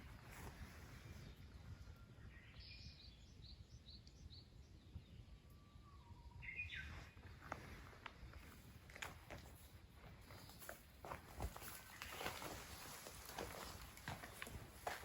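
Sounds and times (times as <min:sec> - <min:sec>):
faint bird chirps: 0:00.0 - 0:07.9.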